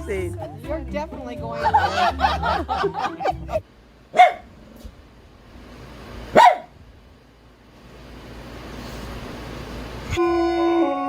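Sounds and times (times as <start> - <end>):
dog barking: 4.1 - 4.5, 6.3 - 6.8.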